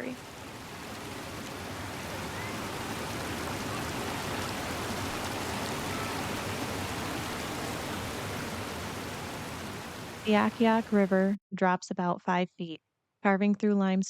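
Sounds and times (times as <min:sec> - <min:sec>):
waterfall rushing: 0:00.0 - 0:11.1.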